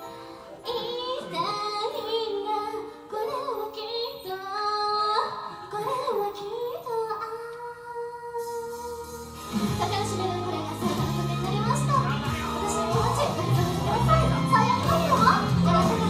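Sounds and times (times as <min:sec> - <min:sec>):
woman singing pop song: 0:00.1 - 0:16.0
instrumental accompaniment: 0:08.5 - 0:16.0.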